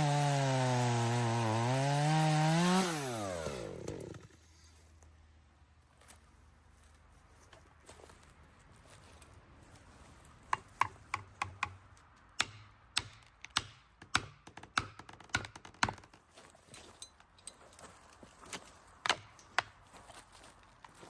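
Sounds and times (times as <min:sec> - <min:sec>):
blade chopping wood: 0:00.0 - 0:04.3, 0:12.4 - 0:16.2, 0:19.0 - 0:19.8.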